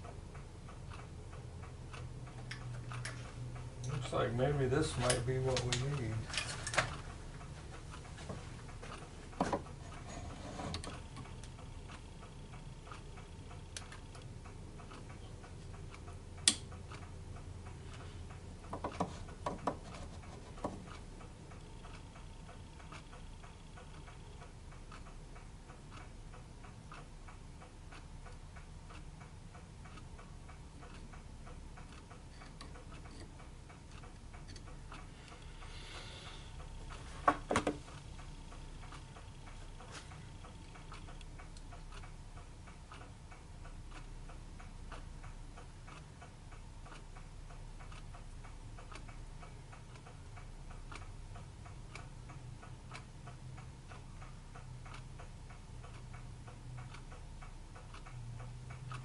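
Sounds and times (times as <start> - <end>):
faint regular ticking: 0.0 - 59.0
sharp clicks: 16.4 - 17.1.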